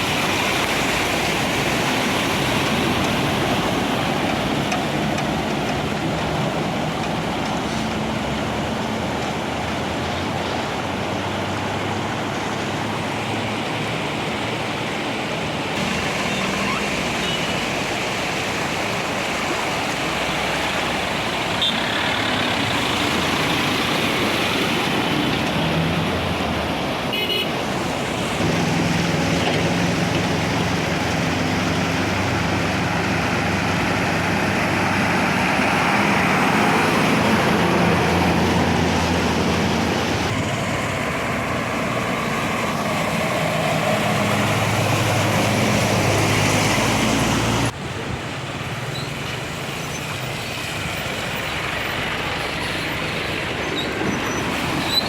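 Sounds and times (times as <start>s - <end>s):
rushing water: 0.0s - 55.0s
traffic noise: 0.0s - 55.0s
vehicle engines running: 0.0s - 55.0s
car horn toots: 27.1s - 27.5s.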